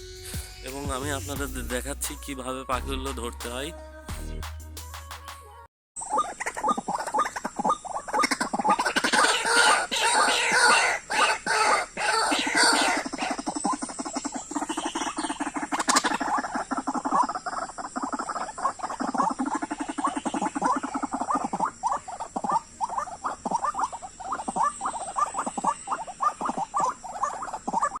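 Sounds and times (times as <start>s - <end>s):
short animal calls: 6.0s - 28.0s.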